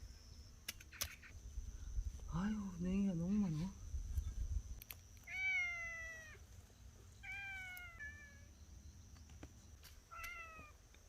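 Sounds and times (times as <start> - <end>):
cat meowing: 5.3 - 6.4.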